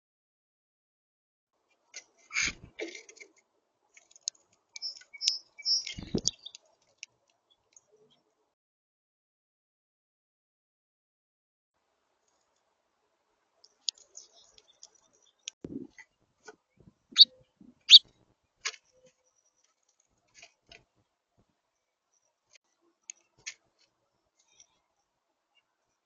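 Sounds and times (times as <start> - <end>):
finch pecking at seed: 4.0 - 6.6.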